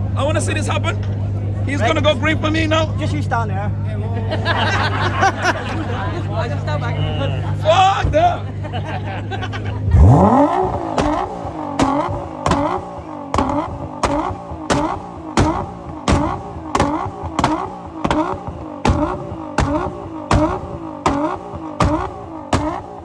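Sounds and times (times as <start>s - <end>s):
car engine revving: 0.0s - 23.0s
exhaust cracks: 7.5s - 23.0s.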